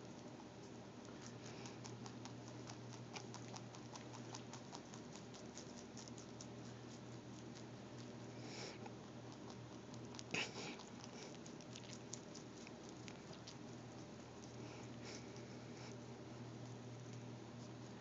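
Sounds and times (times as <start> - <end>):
rabbit chewing crunchy leaves: 0.0 - 18.0
steady low hum: 0.0 - 18.0.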